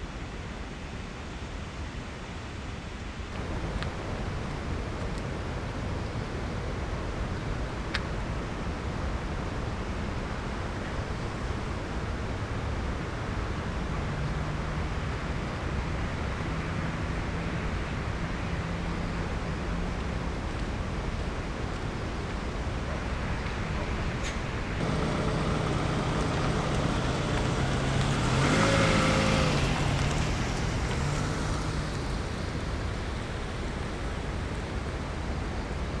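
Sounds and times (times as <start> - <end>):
rain hiss: 24.8 - 35.5
vehicle engine humming: 24.8 - 35.5.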